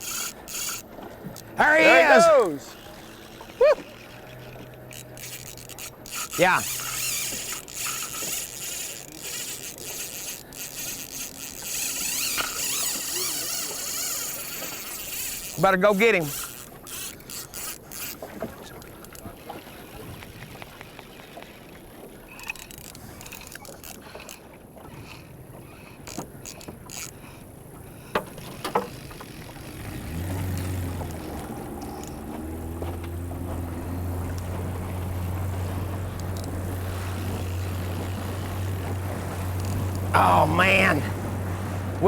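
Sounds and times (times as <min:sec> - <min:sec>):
outboard motor running: 0:00.0 - 0:42.0.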